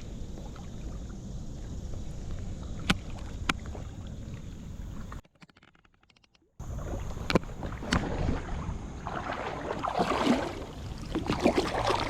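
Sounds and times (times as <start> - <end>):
water splashing and lapping: 0.0 - 5.3, 6.5 - 12.0
wind rumble on microphone: 6.6 - 12.0.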